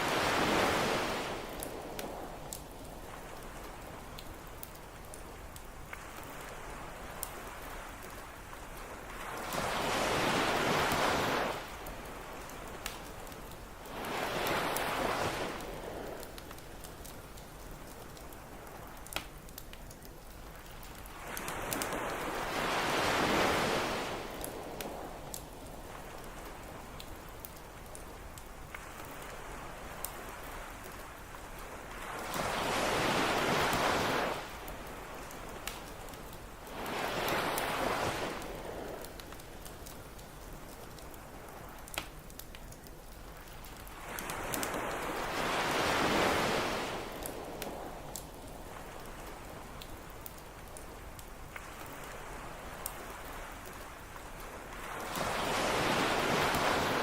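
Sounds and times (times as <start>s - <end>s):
wave breaking on beach: 0.0s - 3.9s, 6.0s - 16.6s, 21.1s - 25.3s, 28.8s - 39.5s, 43.9s - 49.7s, 51.6s - 57.0s
campfire crackling: 0.0s - 57.0s
surf hiss: 0.0s - 57.0s.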